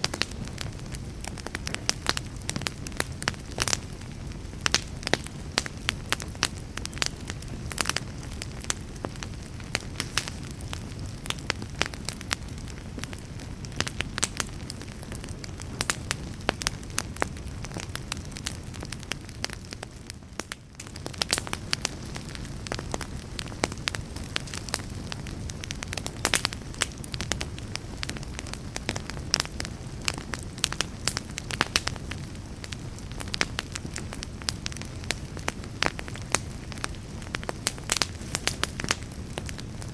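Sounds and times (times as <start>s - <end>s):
campfire crackling and popping: 0.0s - 39.9s
flames rushing: 0.0s - 39.9s.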